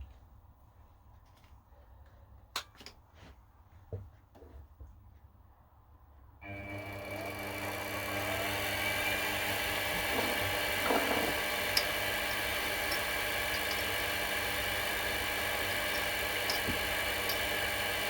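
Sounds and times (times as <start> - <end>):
milling machine motor whine: 6.4 - 18.0.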